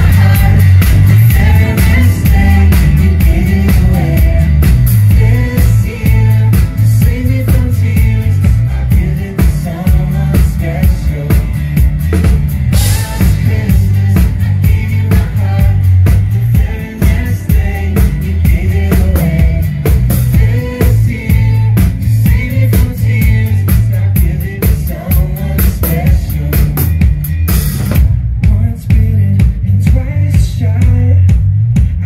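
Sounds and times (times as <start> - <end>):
live band playing instrumental: 0.0 - 29.7
bass: 0.0 - 32.0
drum kit beat: 0.0 - 32.0.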